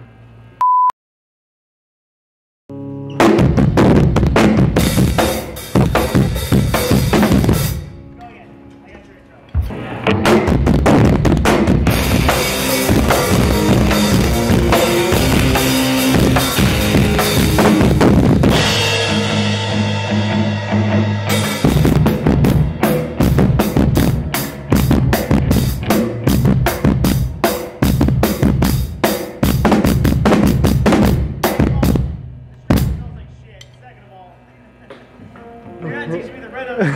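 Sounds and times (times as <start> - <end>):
amplified guitar chords: 2.7 - 8.8, 9.5 - 28.7, 35.1 - 36.9
drum kit pounding: 3.2 - 7.9, 9.6 - 33.5.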